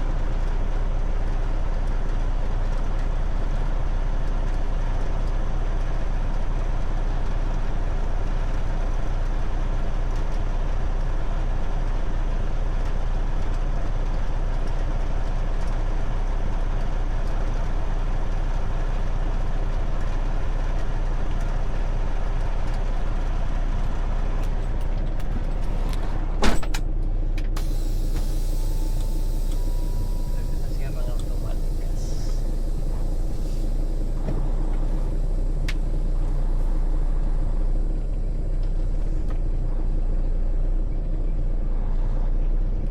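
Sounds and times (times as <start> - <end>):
vehicle engine and road rumble: 0.0 - 42.9
faint steady tone: 27.6 - 39.1.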